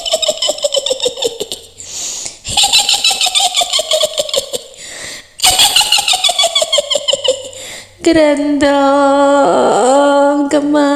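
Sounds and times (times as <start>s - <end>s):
high-pitched witch cackle: 0.0s - 1.8s, 2.5s - 4.8s, 5.4s - 7.6s.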